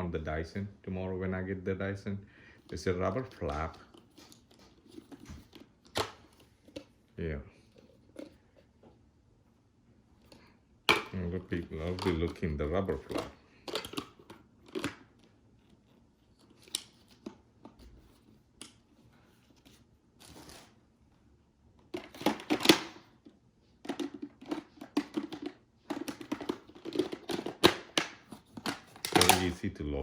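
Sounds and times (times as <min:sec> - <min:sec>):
plastic parts clicking and rattling: 0:10.2 - 0:15.8, 0:21.8 - 0:29.6.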